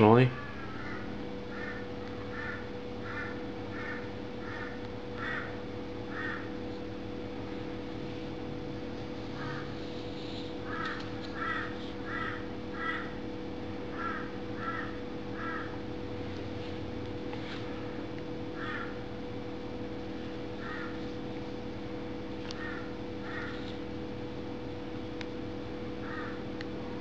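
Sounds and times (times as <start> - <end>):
bird calling: 0.0 - 6.6, 9.3 - 13.2, 13.9 - 15.8, 18.6 - 19.0, 20.6 - 21.0, 22.6 - 23.8, 26.0 - 26.4
steady low hum: 0.0 - 27.0.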